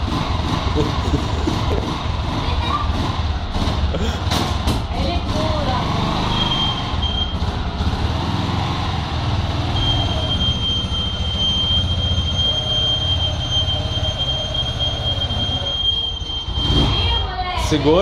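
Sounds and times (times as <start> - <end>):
motorcycle engine rumbling: 0.0 - 18.0
high-pitched whine: 9.7 - 16.8.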